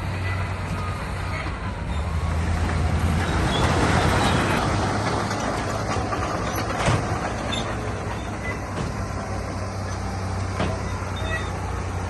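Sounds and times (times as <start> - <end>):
diesel engine running: 0.0 - 12.0
metallic clanks and rattles: 3.6 - 11.6.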